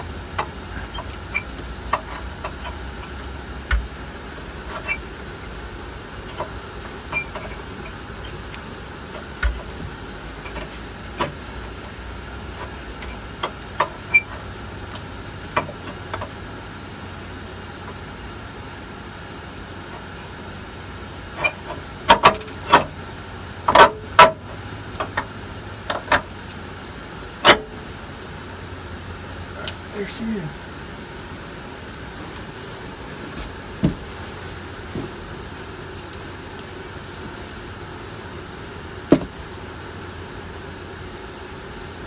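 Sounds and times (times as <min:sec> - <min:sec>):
low background hum: 0:00.0 - 0:42.0
clinks and knocks of hand tools: 0:22.1 - 0:22.9.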